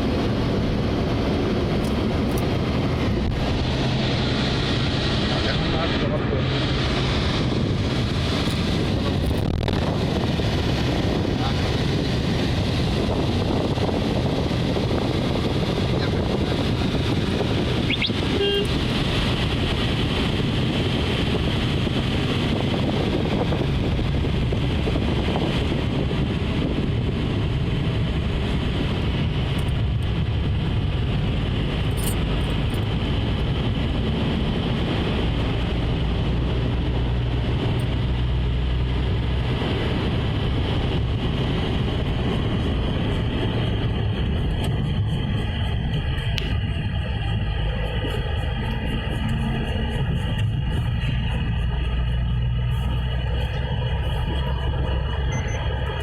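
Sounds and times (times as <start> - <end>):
rushing road noise: 0.0 - 56.0
vehicle engine hum: 0.0 - 56.0
short pitched tone: 55.2 - 55.7.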